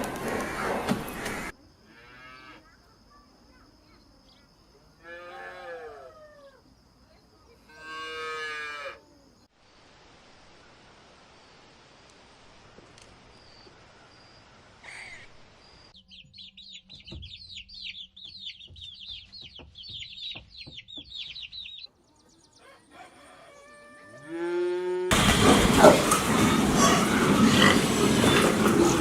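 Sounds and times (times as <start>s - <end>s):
chicks peeping: 16.0s - 21.9s
rooster crowing: 22.6s - 27.5s
loud rough sound: 25.1s - 29.0s.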